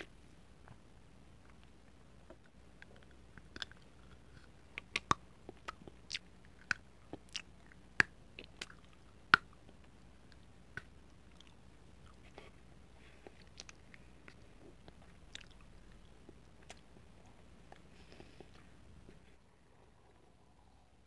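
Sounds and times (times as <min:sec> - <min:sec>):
chocolate snapping and crunching: 0:02.8 - 0:12.2.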